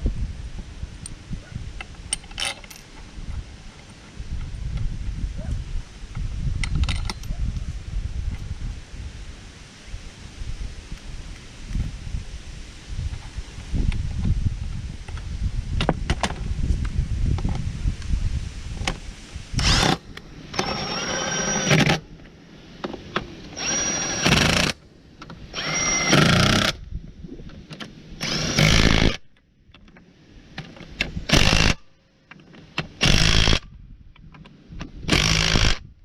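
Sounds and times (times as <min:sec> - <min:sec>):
impact wrench bursts: 0:25.6 - 0:26.8, 0:28.2 - 0:29.2, 0:31.3 - 0:31.8, 0:33.0 - 0:33.6, 0:35.1 - 0:35.8.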